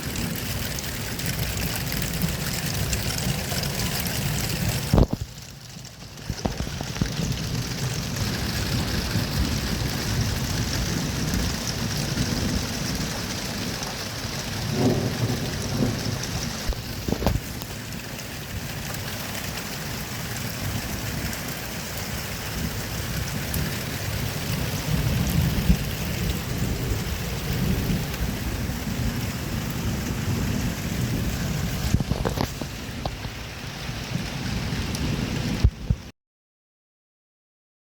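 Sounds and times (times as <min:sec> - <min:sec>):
heavy rain: 0:00.0 - 0:36.1
thunder rumbling: 0:00.0 - 0:36.1
sharp thunder crack: 0:14.6 - 0:17.6.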